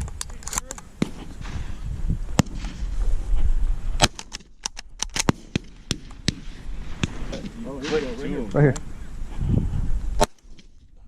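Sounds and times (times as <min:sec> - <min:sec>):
light cracks and clicks: 0:00.0 - 0:00.9
low wind rumble: 0:00.0 - 0:11.0
shotgun shots: 0:02.4 - 0:02.9, 0:05.1 - 0:08.4.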